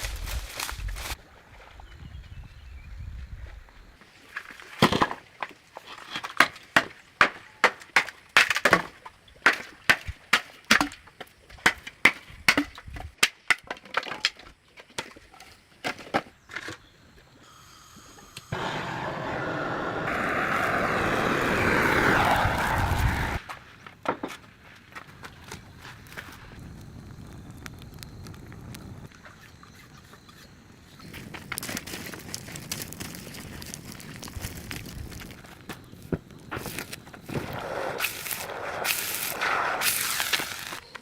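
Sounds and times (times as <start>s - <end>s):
steady rushing noise: 18.5s - 23.4s.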